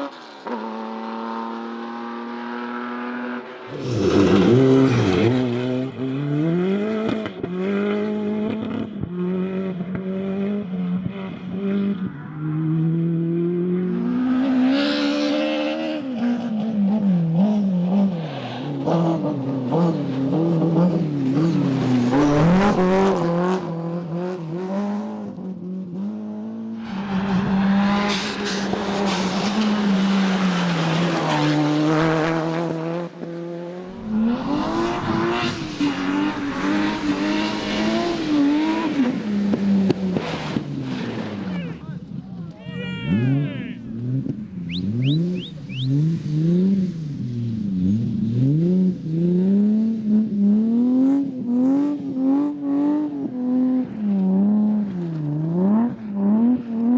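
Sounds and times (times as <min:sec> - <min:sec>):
rally car engines revving hard: 0:00.0 - 0:56.9
gear shifts: 0:33.9 - 0:48.5.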